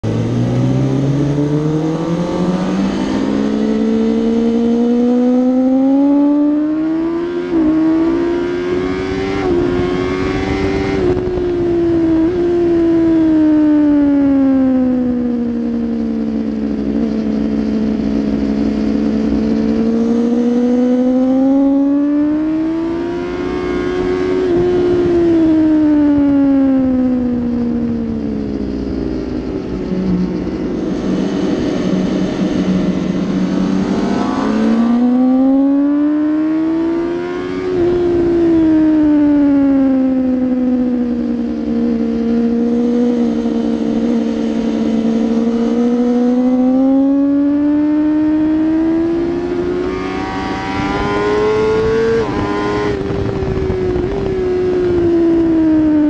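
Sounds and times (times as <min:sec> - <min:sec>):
motorcycle engine revving: 0:00.0 - 0:56.0
rush of noise: 0:27.0 - 0:38.4.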